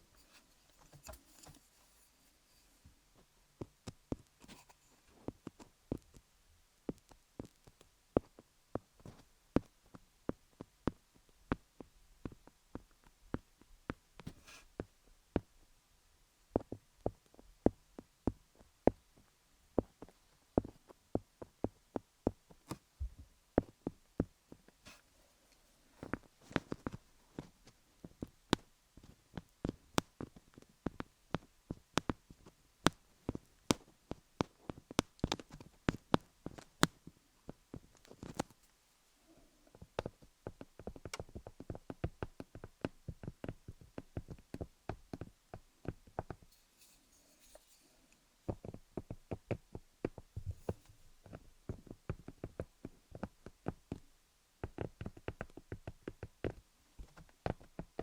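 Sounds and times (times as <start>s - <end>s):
pencils tapping on microphone: 26.0s - 38.6s, 39.8s - 47.7s, 48.5s - 54.0s, 54.6s - 58.0s.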